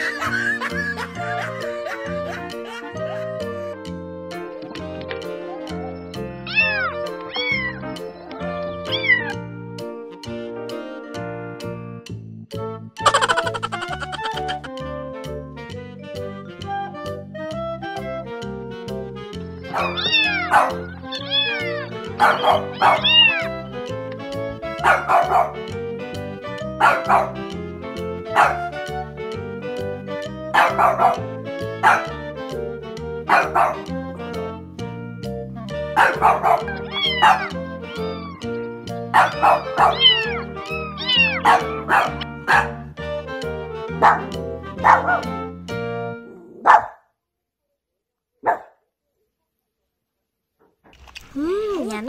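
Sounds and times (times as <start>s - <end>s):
puppy yelping: 13.0s - 14.7s, 19.7s - 23.6s, 36.0s - 38.5s, 39.2s - 42.8s.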